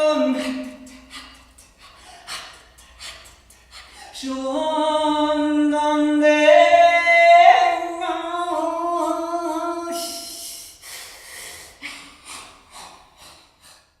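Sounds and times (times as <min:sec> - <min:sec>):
person humming a held note: 0:00.0 - 0:01.4
short breathy exhalations: 0:00.4 - 0:04.2.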